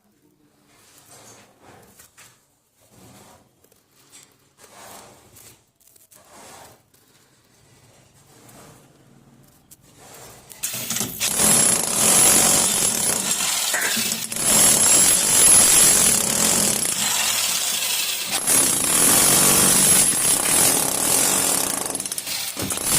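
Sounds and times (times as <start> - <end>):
power tool cutting masonry: 10.6 - 22.9.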